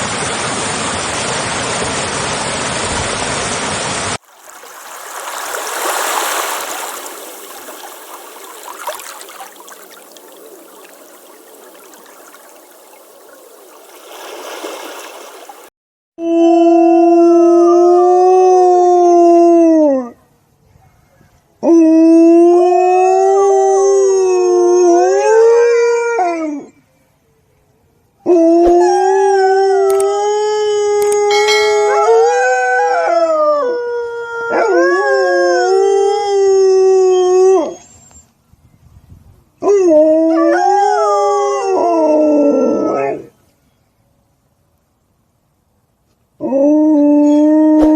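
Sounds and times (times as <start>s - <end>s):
dog howling: 28.3s - 37.8s, 39.7s - 43.3s.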